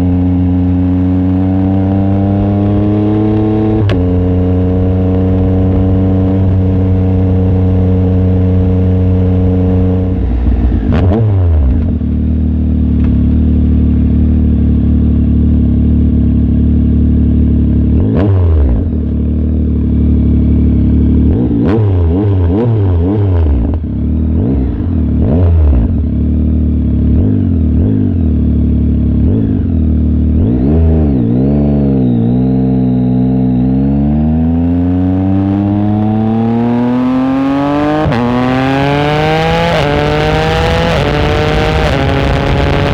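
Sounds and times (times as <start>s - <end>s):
motorcycle engine running: 0.0s - 42.9s
exhaust cracks: 12.8s - 13.4s.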